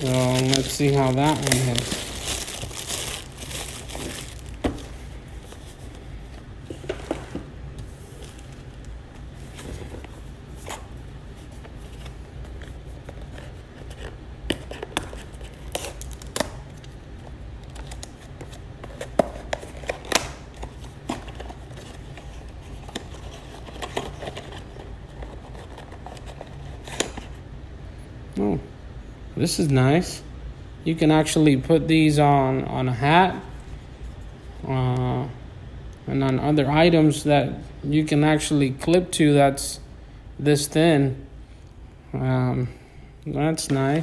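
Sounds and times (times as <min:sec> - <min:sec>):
packaging crinkling and tearing: 0:00.0 - 0:05.9, 0:13.1 - 0:17.0, 0:17.6 - 0:27.3
steady low hum: 0:00.0 - 0:44.0.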